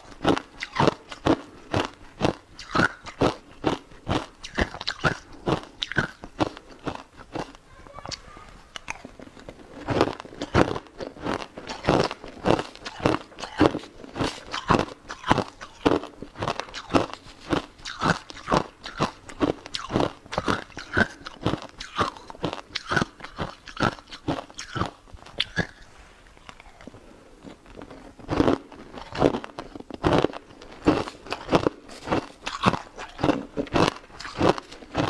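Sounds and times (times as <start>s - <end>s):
ice crunched between teeth: 0.0s - 7.6s, 8.8s - 35.0s.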